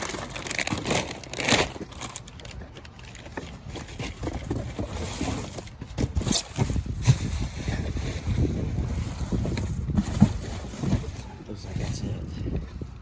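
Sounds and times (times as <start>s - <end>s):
trash being handled: 0.0s - 12.2s
wind buffeting microphone: 6.0s - 13.0s.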